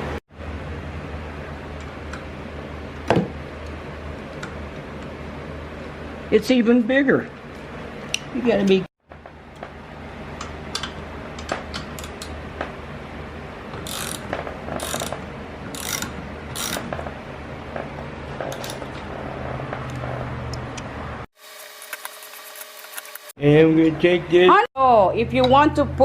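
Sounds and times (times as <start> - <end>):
steady low hum: 0.0 - 21.3
ratchet wrench ratcheting: 13.8 - 16.9.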